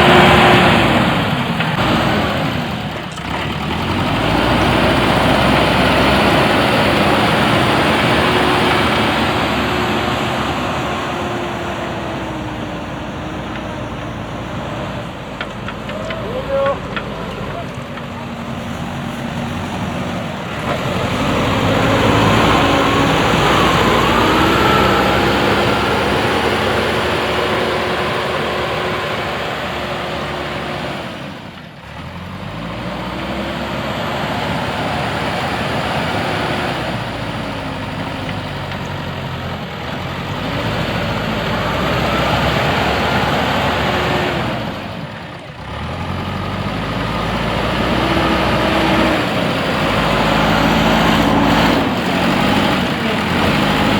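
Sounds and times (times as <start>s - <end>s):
backhoe diesel engine working: 0.0s - 53.9s.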